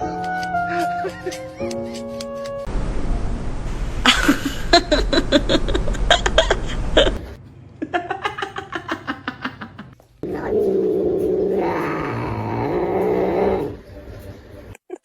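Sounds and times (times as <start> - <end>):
person laughing hard: 0.0 - 2.7, 4.0 - 10.0.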